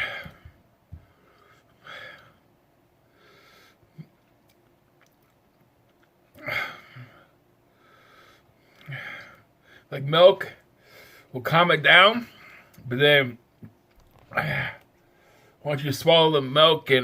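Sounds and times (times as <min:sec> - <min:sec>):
man breathing out heavily: 0:00.0 - 0:02.4, 0:06.4 - 0:09.9.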